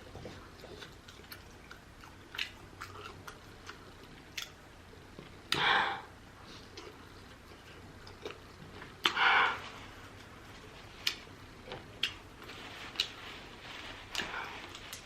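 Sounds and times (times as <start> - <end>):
chewing with wet mouth clicks: 0.1 - 5.6, 6.7 - 9.2, 11.0 - 12.2.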